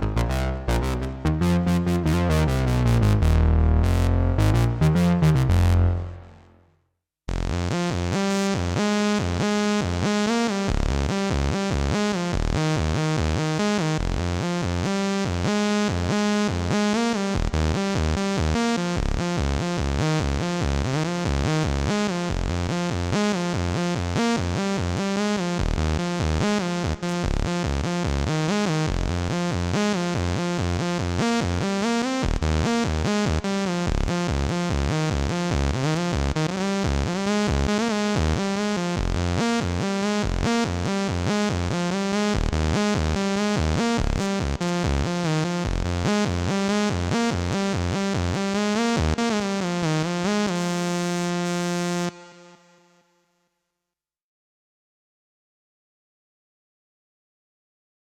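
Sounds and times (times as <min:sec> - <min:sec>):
synthesizer sequenced pattern: 0:00.0 - 0:06.4.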